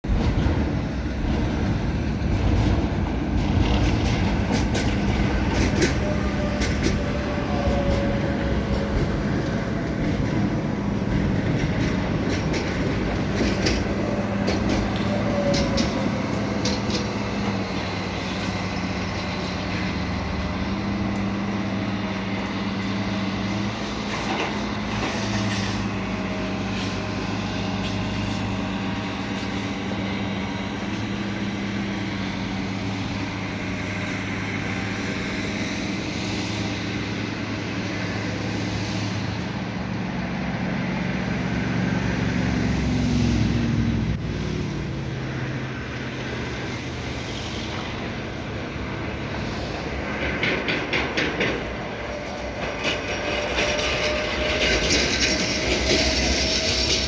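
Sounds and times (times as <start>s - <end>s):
engine rumble: 0.0s - 57.0s
sharp knocks and clicks: 50.2s - 51.8s.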